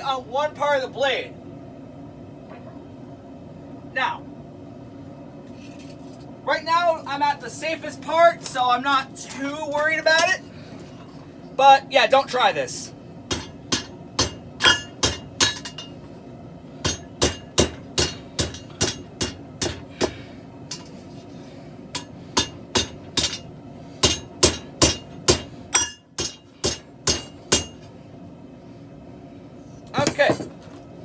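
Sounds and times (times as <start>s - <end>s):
hammer striking steel on anvil: 13.3s - 16.0s, 16.8s - 20.9s, 22.0s - 27.9s.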